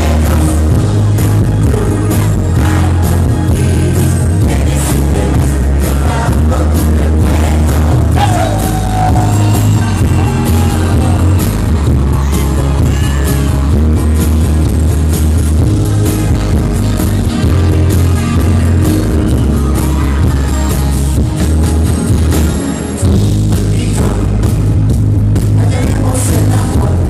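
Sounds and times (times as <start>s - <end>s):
person singing: 0.0s - 13.7s
live pop band playing: 0.0s - 27.0s.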